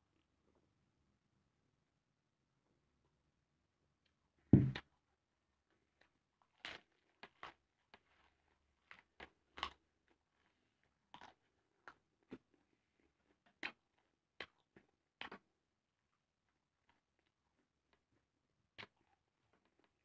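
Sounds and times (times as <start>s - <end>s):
chewing crisp lettuce: 6.4s - 13.7s.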